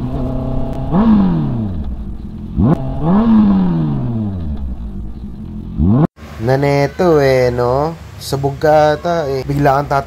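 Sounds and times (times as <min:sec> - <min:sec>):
motorcycle engine revving: 0:00.0 - 0:06.4.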